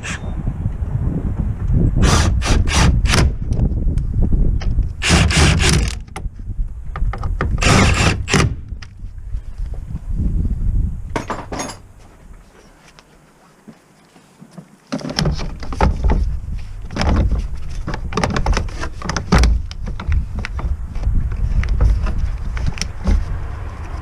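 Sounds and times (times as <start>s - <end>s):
tools and car parts knocking: 11.2s - 11.8s.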